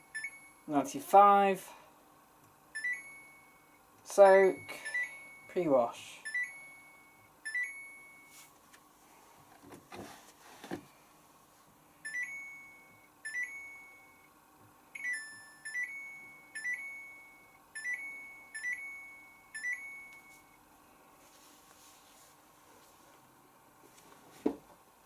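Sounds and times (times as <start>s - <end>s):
washing machine two-note beeps: 0.0s - 0.7s, 2.7s - 8.4s, 12.0s - 14.4s, 15.0s - 20.6s.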